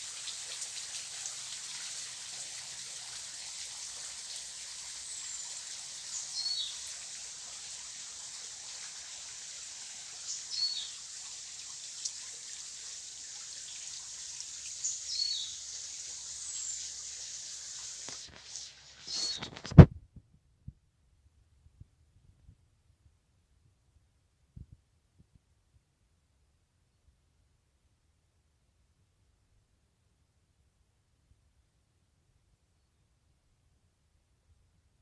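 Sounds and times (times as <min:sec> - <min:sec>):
steady high hiss: 0:00.0 - 0:19.9.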